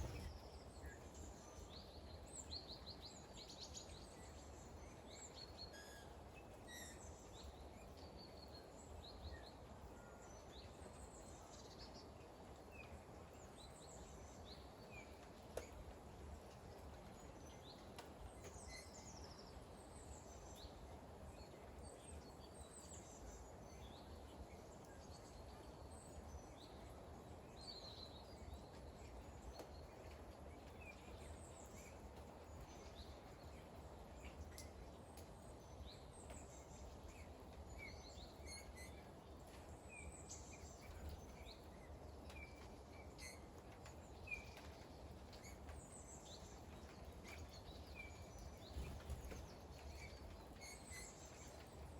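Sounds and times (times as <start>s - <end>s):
small birds chirping: 0.0s - 5.5s, 27.7s - 51.9s
light rain hiss: 0.0s - 51.9s
sharp drip-like ticks: 34.3s - 35.4s.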